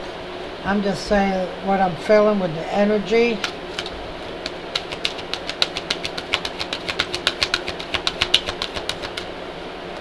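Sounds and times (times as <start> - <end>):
cards being shuffled: 3.3 - 9.3.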